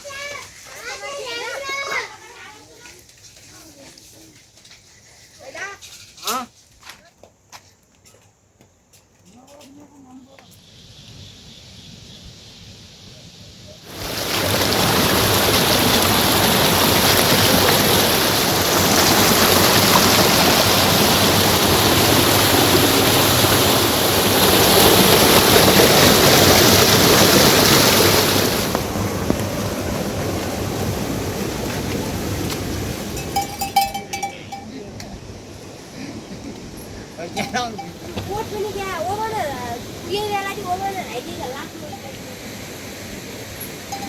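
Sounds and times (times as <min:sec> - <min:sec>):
water rushing: 0:11.9 - 0:44.0.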